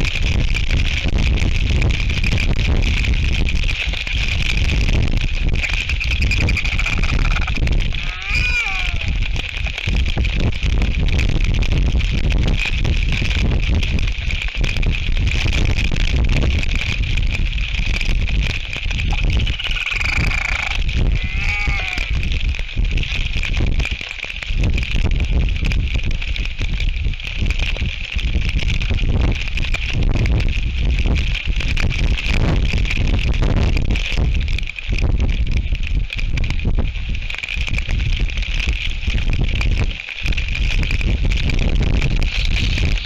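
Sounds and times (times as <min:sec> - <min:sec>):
rain hiss: 0:00.0 - 0:43.0
wind rumble on microphone: 0:00.0 - 0:43.0
albatrosses bleating calls: 0:06.1 - 0:09.4, 0:19.4 - 0:22.3.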